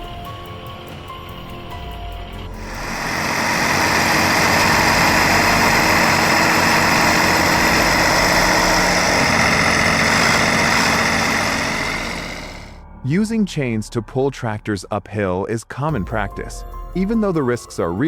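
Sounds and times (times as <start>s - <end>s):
tractor engine running: 0.0s - 12.8s.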